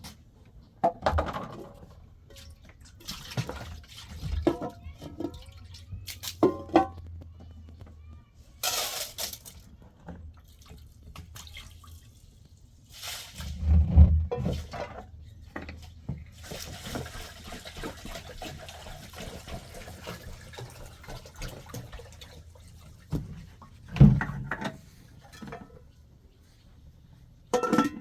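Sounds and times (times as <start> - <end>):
water running and splashing: 16.3 - 23.9.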